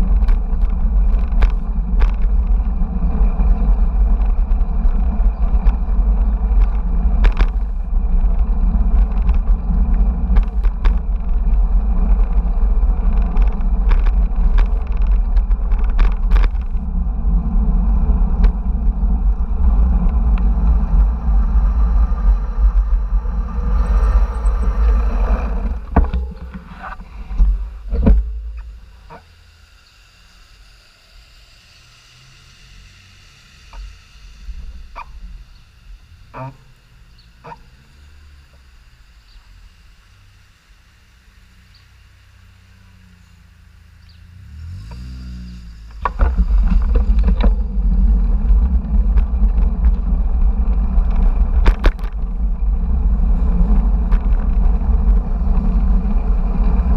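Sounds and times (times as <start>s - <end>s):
wind buffeting microphone: 0.0s - 29.0s, 46.0s - 56.9s
bicycle rattling and knocking: 0.0s - 29.3s, 45.8s - 56.9s.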